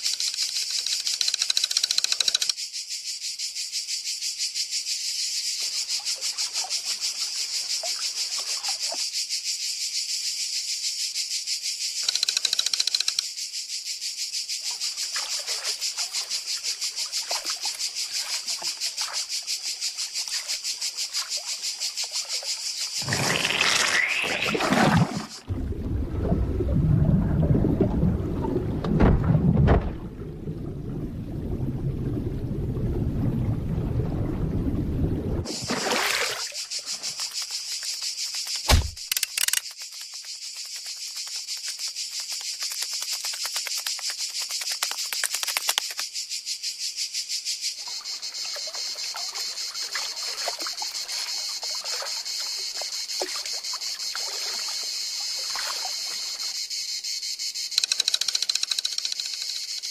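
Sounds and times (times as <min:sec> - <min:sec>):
insect-like chirring: 0:00.0 - 0:25.5, 0:35.5 - 0:59.9
low rumbling: 0:25.5 - 0:35.4
sharp thump: 0:38.6 - 0:39.1.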